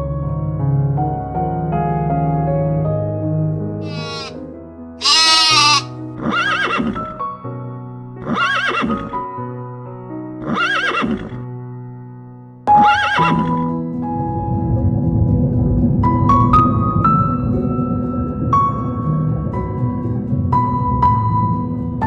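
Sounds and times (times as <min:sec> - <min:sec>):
soft piano music: 0:00.0 - 0:03.8, 0:04.4 - 0:10.8, 0:11.4 - 0:22.0
horse whinnying: 0:03.8 - 0:04.4, 0:05.0 - 0:07.2, 0:08.2 - 0:09.2, 0:10.4 - 0:11.4, 0:12.8 - 0:13.6.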